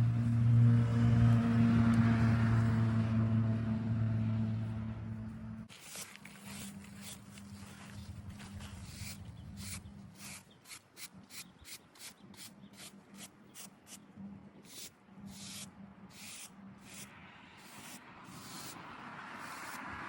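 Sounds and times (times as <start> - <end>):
low hum: 0.0 - 10.3.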